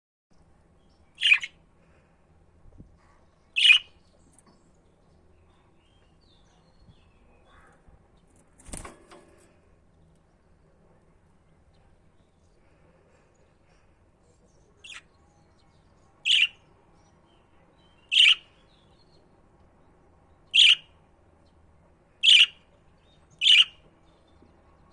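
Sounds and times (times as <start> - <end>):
budgerigar chirping: 1.2 - 1.5, 22.2 - 22.6.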